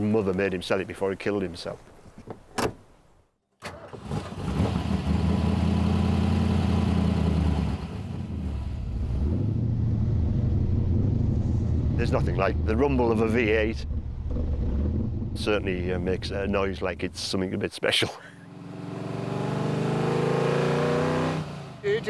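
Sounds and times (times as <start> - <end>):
car engine starting and idling: 3.6 - 17.4.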